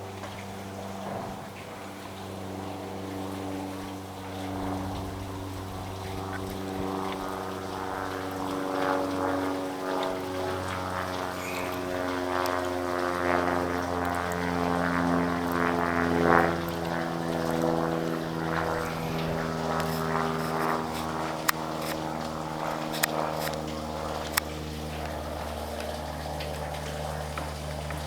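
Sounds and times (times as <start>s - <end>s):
engine running steadily: 0.0s - 28.0s
sharp clicks: 22.7s - 24.5s.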